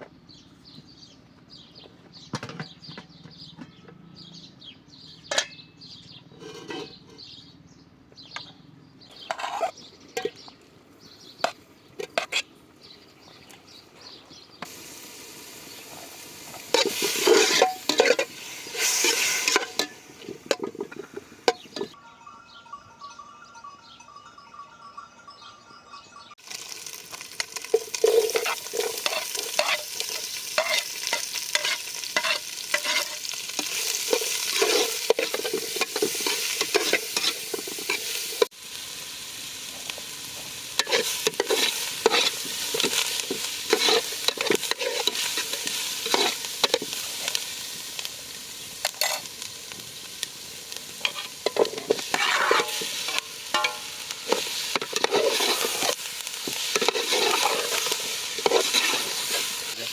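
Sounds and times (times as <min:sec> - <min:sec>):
utensil scraping and knocking pan: 0:06.4 - 0:07.3, 0:09.2 - 0:10.4, 0:16.6 - 0:22.0, 0:27.7 - 0:38.5, 0:40.8 - 0:47.0, 0:51.0 - 0:59.5
food sizzling in a pan: 0:14.6 - 0:22.0, 0:26.4 - 0:59.9.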